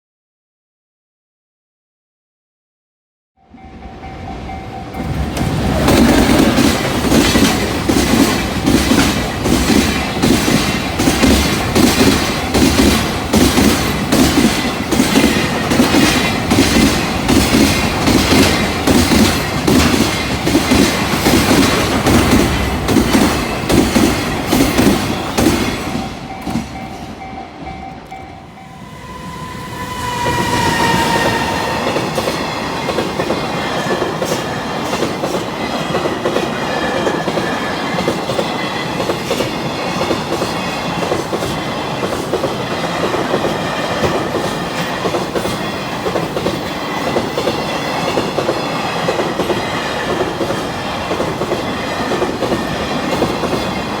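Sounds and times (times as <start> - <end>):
train rolling rumble: 3.6 - 54.0
train wheels clattering: 4.4 - 54.0
high squealing tones: 28.4 - 34.1.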